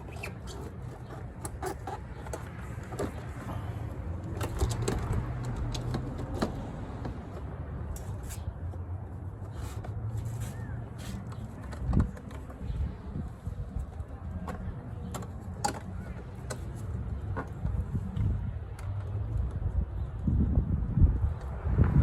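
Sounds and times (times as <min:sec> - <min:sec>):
tools clicking and knocking: 0:00.0 - 0:03.6, 0:04.2 - 0:08.2, 0:14.4 - 0:17.8.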